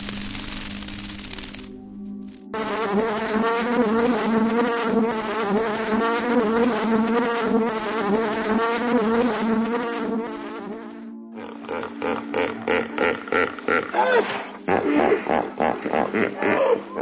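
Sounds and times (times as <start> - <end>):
flying insect buzzing: 0.0 - 13.1.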